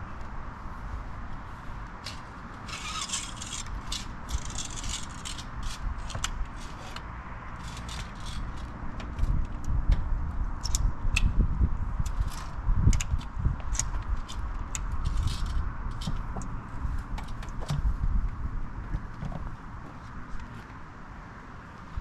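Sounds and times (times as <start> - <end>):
steady low rumble: 0.0 - 21.2
rattling and scraping handling: 2.0 - 10.1, 12.0 - 18.0.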